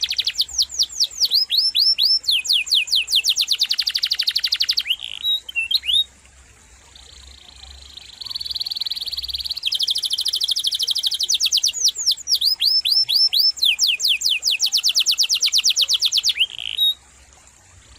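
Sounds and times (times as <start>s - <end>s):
canary singing: 0.0s - 6.1s, 6.9s - 17.0s.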